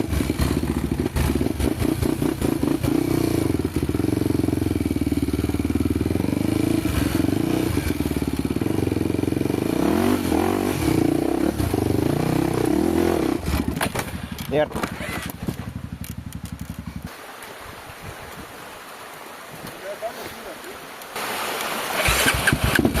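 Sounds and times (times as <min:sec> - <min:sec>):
motorcycle engine running: 0:00.0 - 0:17.1.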